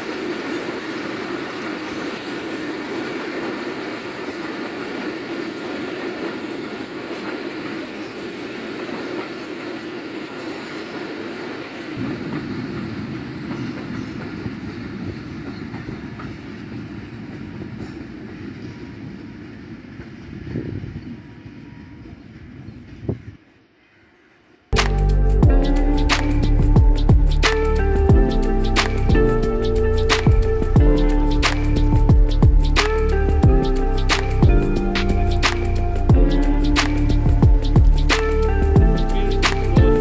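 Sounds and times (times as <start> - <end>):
train wheels rumbling on rail: 0.0 - 40.0
deep low rumble: 24.8 - 40.0.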